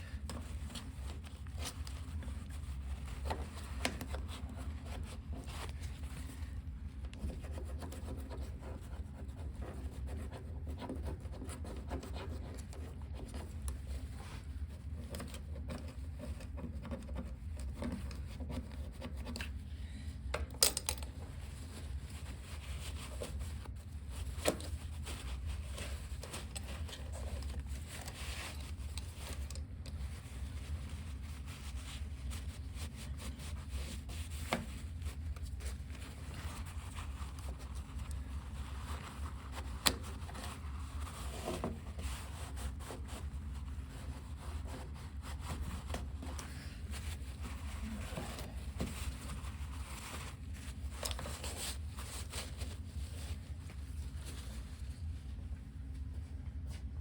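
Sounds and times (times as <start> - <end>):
paper and brush rubbing on car: 21.4 - 55.4.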